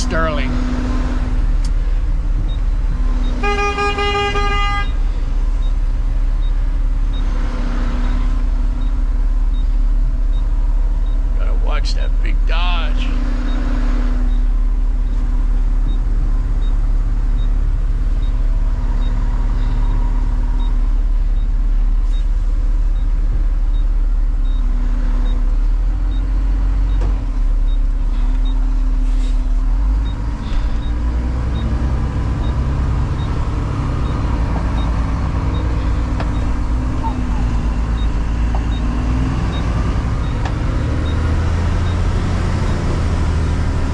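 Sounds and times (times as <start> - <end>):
diesel truck engine running: 0.0 - 43.9.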